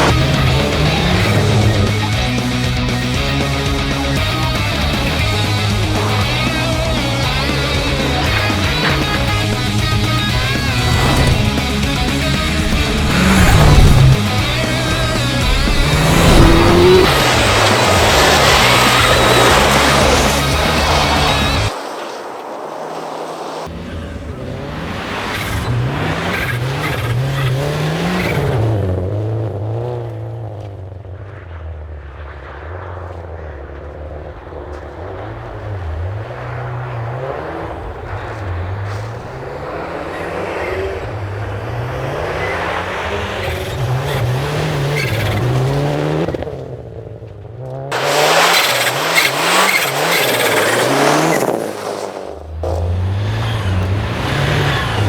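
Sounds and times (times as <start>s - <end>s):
rally car engine revving: 0.0s - 22.2s, 23.1s - 55.0s
loud rush of noise: 0.0s - 26.2s.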